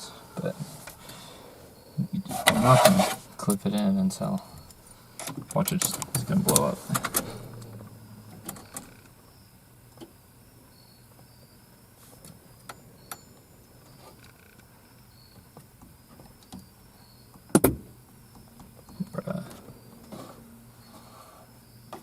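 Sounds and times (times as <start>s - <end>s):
low hum: 4.5s - 10.0s.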